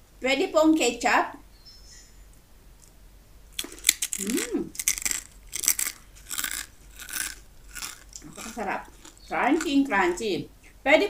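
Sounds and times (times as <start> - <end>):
crunchy food being chewed: 2.8 - 10.2.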